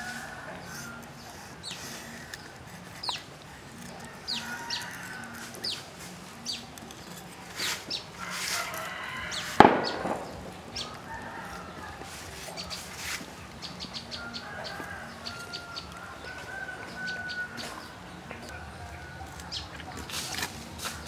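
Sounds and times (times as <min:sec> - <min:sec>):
birds chirping: 0:00.0 - 0:21.0
sharp knock: 0:09.6 - 0:10.5.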